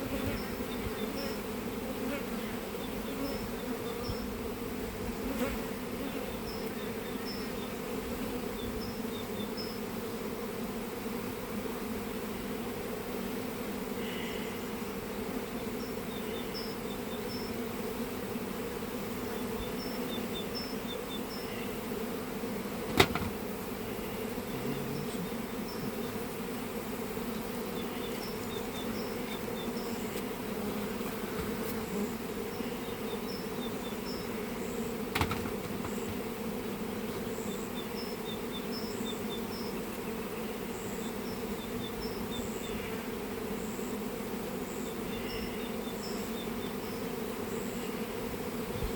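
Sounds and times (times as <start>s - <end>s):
honeybees buzzing: 0.0s - 48.9s
sharp knocks: 22.9s - 23.4s, 35.1s - 36.2s.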